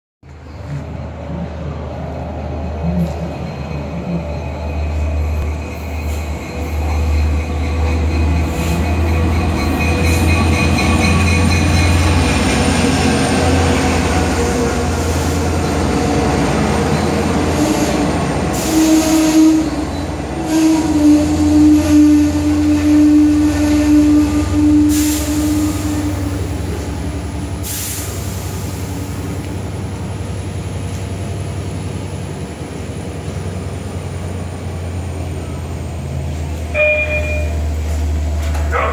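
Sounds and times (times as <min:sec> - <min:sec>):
diesel train passing: 0:00.2 - 0:38.9
train brake squeal: 0:02.9 - 0:12.2.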